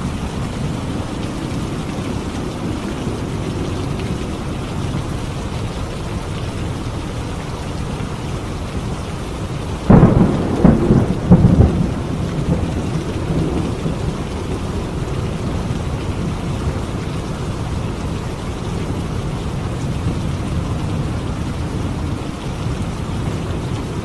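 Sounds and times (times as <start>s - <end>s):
heavy rain: 0.0s - 24.0s
thunderclap and rumbles: 9.6s - 24.0s.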